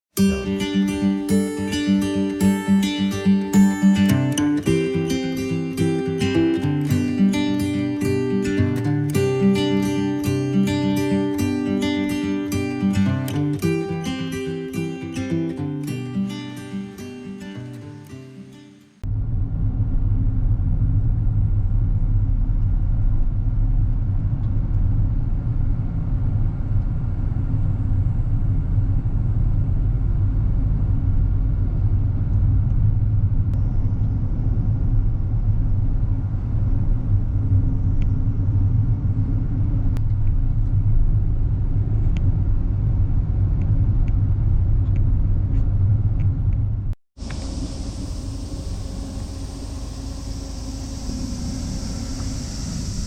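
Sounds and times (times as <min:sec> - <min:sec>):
car engine and road rumble: 0:19.0 - 0:53.0.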